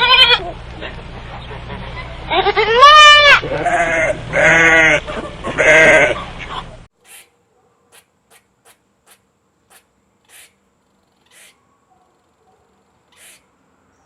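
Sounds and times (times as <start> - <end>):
animal bleating: 0.0 - 0.5, 2.3 - 6.2.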